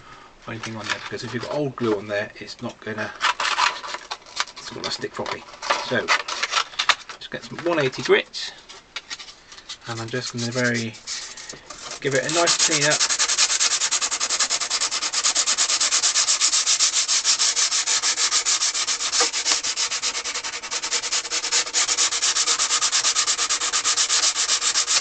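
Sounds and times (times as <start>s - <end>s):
hand sanding strokes: 9.8s - 25.0s.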